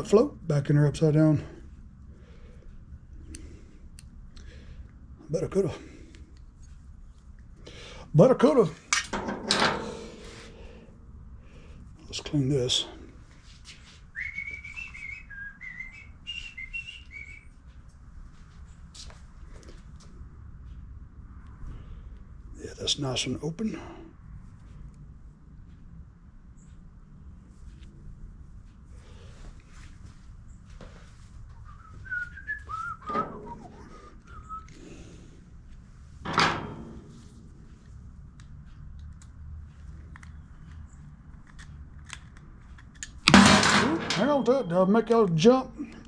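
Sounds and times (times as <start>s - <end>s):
person whistling a tune: 14.2s - 17.5s, 31.7s - 34.7s.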